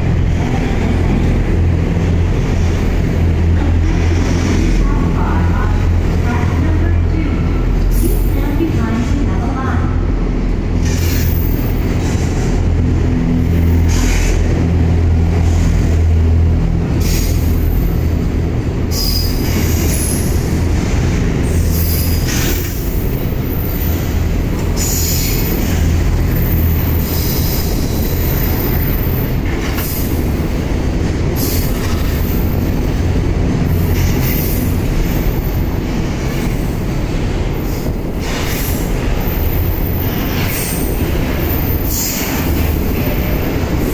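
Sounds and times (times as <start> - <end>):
freight train rumbling: 0.0 - 43.9
high wheel squeal: 18.9 - 20.4, 21.5 - 24.1.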